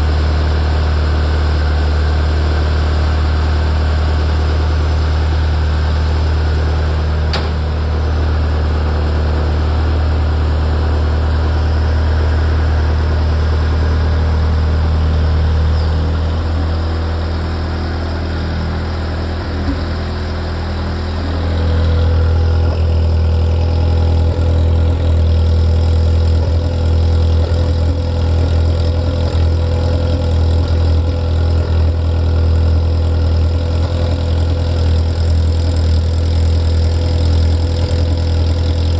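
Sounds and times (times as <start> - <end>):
car engine idling: 0.0 - 38.9
mid-pitched hum: 0.0 - 38.9.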